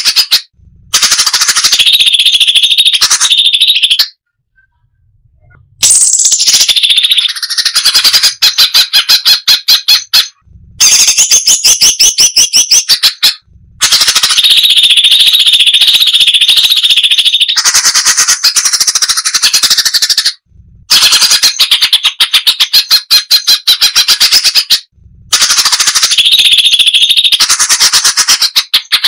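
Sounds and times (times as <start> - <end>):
bird singing fast repeated notes: 0.0 - 29.0.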